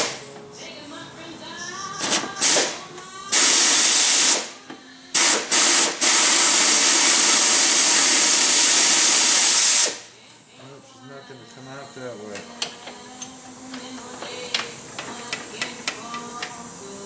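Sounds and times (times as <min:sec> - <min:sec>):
pneumatic air tool hissing: 0:02.0 - 0:10.1.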